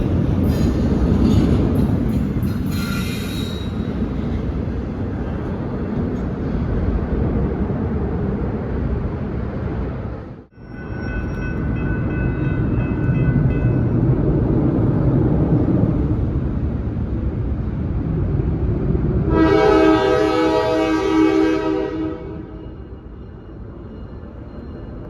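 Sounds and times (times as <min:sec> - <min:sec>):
freight train rumbling: 0:00.0 - 0:25.0
locomotive horn blast: 0:19.3 - 0:22.7.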